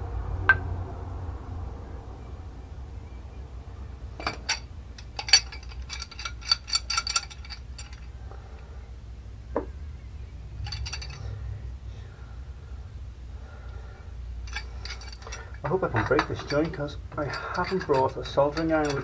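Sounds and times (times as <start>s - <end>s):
metal tools clinking on pipe fittings: 4.2s - 8.2s, 10.6s - 11.4s, 14.4s - 19.0s.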